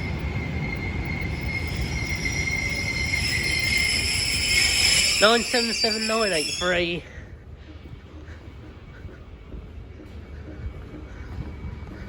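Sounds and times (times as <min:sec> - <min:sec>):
high wheel squeal: 0:00.0 - 0:07.1
train wheels rumbling: 0:00.0 - 0:12.0.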